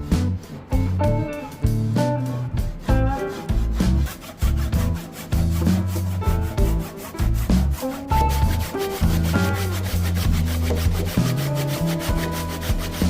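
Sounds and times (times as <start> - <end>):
background music with bass: 0.0 - 13.0
saw cutting wood: 2.8 - 13.0.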